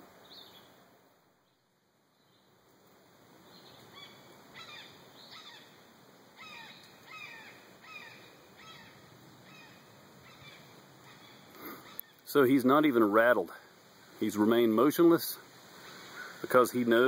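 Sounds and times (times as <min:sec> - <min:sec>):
bird calling faintly: 0:03.4 - 0:05.8, 0:06.4 - 0:12.4, 0:15.7 - 0:16.7.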